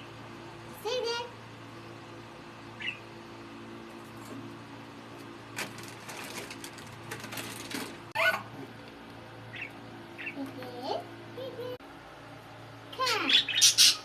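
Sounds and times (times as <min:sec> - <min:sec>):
steady low hum: 0:00.0 - 0:14.0
budgie chirp: 0:02.8 - 0:03.1, 0:13.2 - 0:14.0
budgie squawk: 0:08.2 - 0:08.6, 0:13.2 - 0:14.0.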